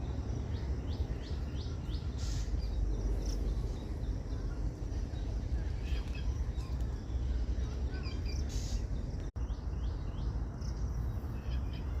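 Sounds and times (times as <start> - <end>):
faint bird chirps: 0.4 - 12.0.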